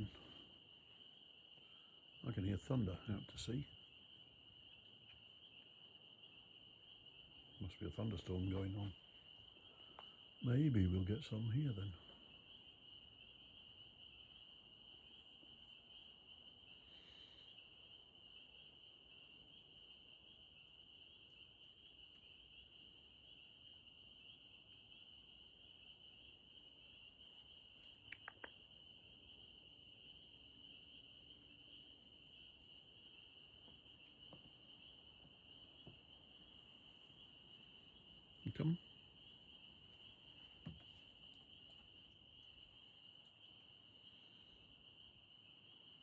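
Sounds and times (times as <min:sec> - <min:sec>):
frog chorus trilling: 0:00.0 - 0:46.0
soft clicks: 0:28.0 - 0:28.6.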